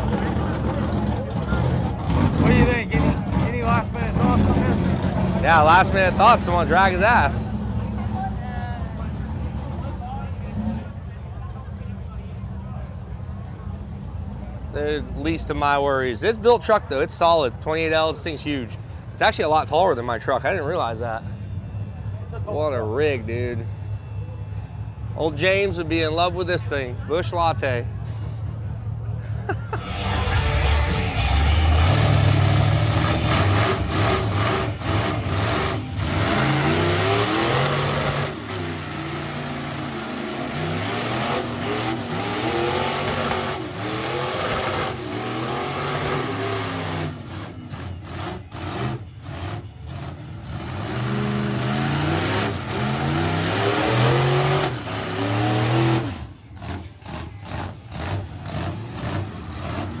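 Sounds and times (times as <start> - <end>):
truck engine revving: 0.0 - 11.1, 29.6 - 60.0.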